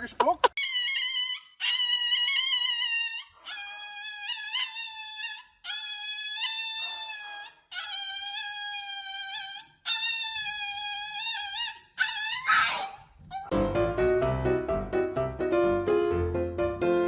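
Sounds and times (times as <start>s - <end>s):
dog howling: 0.6s - 13.5s
dog yelping: 0.6s - 13.5s
piano music: 13.5s - 17.0s.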